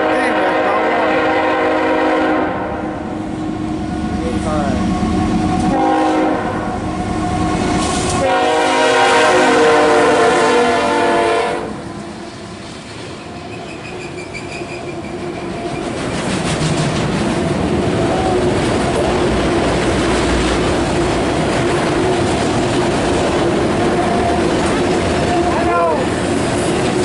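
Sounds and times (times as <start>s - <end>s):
locomotive air horn blast: 0.0s - 3.7s, 4.7s - 11.8s
train wheels clattering on rails: 6.9s - 8.3s, 12.0s - 27.0s.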